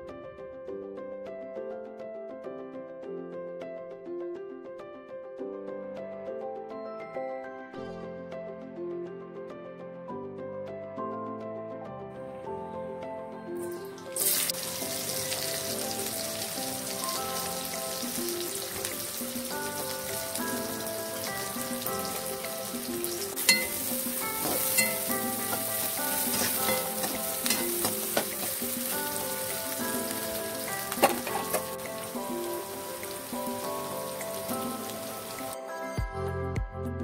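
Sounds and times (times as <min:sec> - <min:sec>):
background music: 0:00.0 - 0:37.0
vegetables sizzling in hot oil: 0:13.6 - 0:35.6
spatula clacking against wok: 0:22.4 - 0:29.0, 0:30.9 - 0:32.0.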